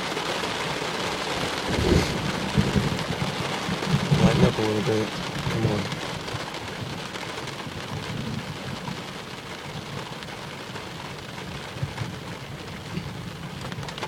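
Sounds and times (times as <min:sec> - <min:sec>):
heavy rain on car roof: 0:00.0 - 0:14.0
low rumble: 0:01.6 - 0:06.0.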